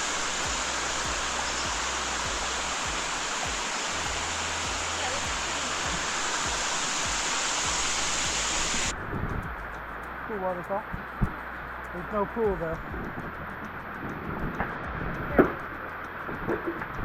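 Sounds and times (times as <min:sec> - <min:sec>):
waterfall rushing over rocks: 0:00.0 - 0:09.7.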